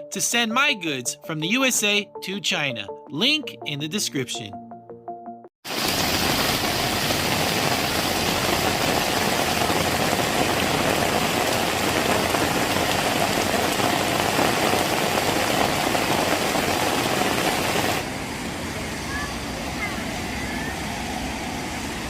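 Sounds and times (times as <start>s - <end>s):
heavy rain falling: 5.7s - 22.0s.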